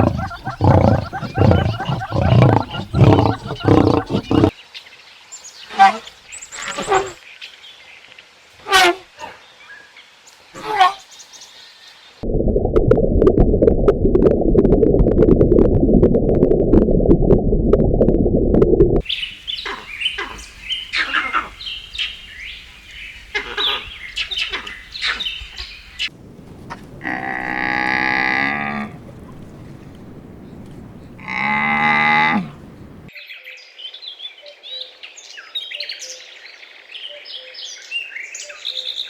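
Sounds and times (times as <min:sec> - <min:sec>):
cow mooing: 0:00.0 - 0:04.5, 0:31.2 - 0:32.6
low rumbling noise: 0:12.2 - 0:19.0.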